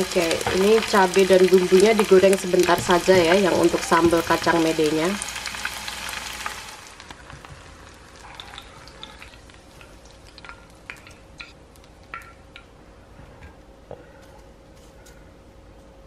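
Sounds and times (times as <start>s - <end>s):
oil sizzling in a pan: 0.0s - 11.4s.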